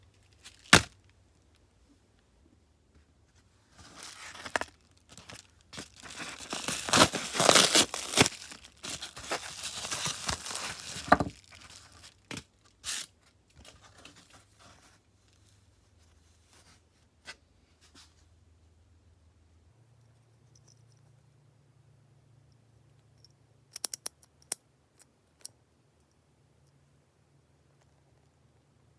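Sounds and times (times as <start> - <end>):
crinkling and tearing: 3.8 - 12.5
sharp clicks and taps: 23.2 - 24.6.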